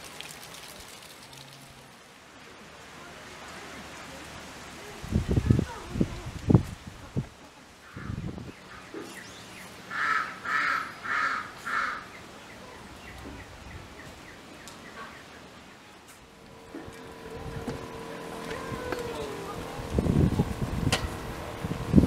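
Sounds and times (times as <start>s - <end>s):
bird calling: 7.8s - 15.6s.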